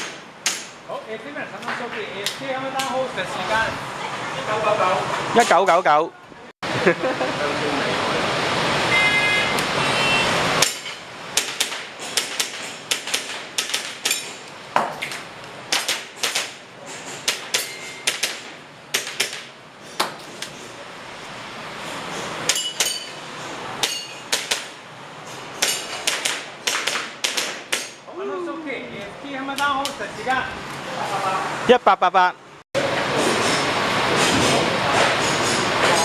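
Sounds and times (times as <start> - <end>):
loud rushing noise: 6.6 - 13.6
metallic ring of steel targets: 17.5 - 18.1, 22.5 - 23.2, 23.8 - 24.4
airsoft pistol shots: 26.0 - 27.9.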